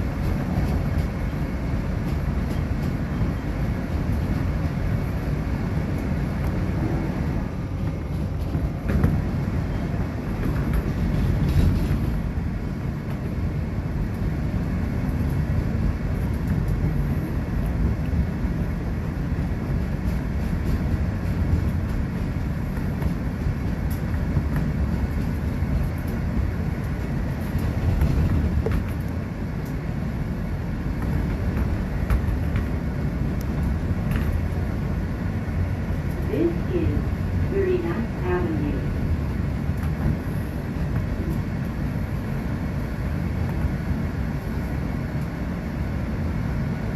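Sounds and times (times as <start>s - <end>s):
train rumbling on track: 0.0s - 46.9s.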